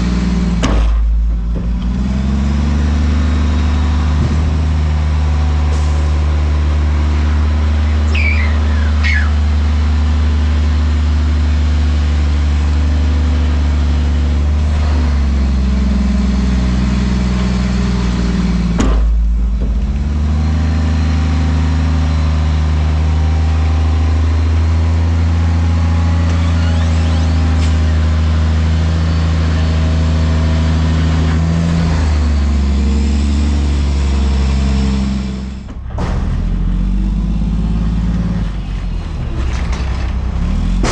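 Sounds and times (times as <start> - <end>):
diesel engine droning: 0.0 - 40.9
short falling squeals: 7.8 - 9.4, 26.2 - 28.2.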